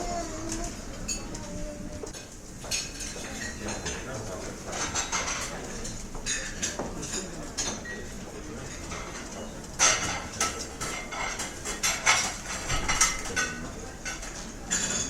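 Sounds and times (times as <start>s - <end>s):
room noise: 0.0s - 2.2s
cutlery and dishes clinking: 2.6s - 15.0s.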